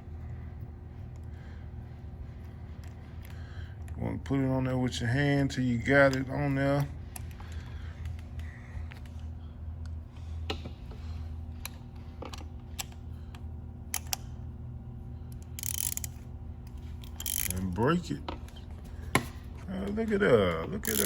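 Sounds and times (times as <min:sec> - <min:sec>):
steady low hum: 0:00.0 - 0:21.0
metal ratchet socket clicks: 0:13.9 - 0:14.2, 0:15.4 - 0:16.2, 0:17.0 - 0:17.8.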